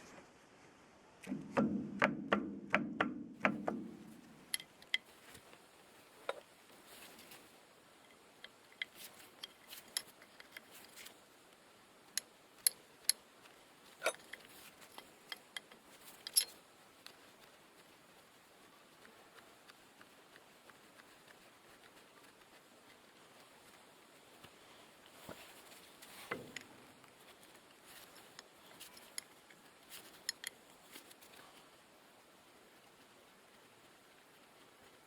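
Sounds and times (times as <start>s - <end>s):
metal tools clicking and knocking: 3.5s - 5.1s, 14.0s - 16.6s, 29.9s - 30.6s.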